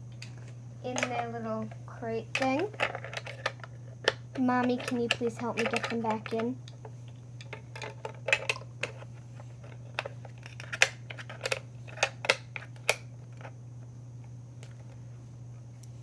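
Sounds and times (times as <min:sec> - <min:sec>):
plastic toy pieces clicking: 0:02.4 - 0:06.4.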